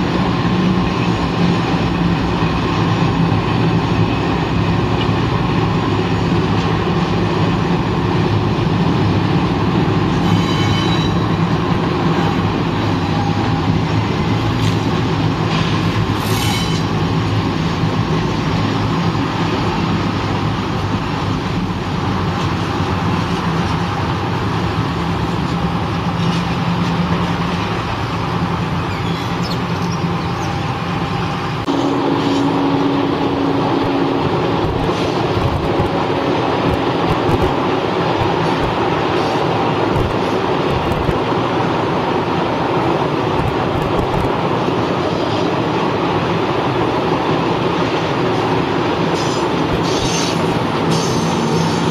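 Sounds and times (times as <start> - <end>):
passenger train rumbling past: 0.0 - 51.9
train passing with low hum: 0.0 - 51.9
train wheel squeals: 10.0 - 17.2, 28.6 - 33.0, 49.1 - 51.9.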